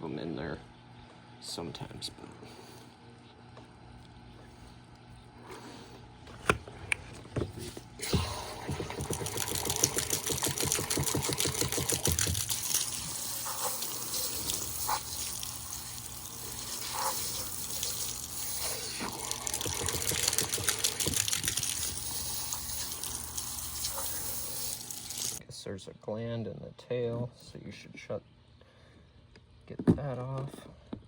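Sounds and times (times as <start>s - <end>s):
tap water running and splashing: 8.0s - 25.4s
rapid spattering flutter: 8.9s - 25.4s.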